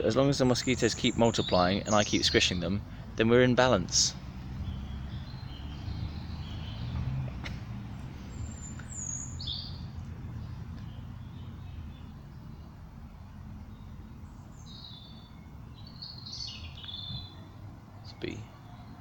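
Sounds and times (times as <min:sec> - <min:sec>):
small birds chirping: 0:00.0 - 0:19.0
steady low rumble: 0:07.8 - 0:15.8.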